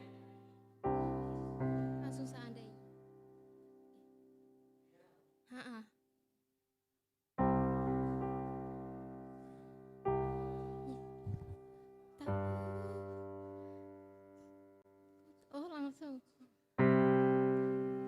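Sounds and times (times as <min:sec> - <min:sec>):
piano chords ringing: 0:00.0 - 0:03.8, 0:07.4 - 0:15.0, 0:16.8 - 0:18.0.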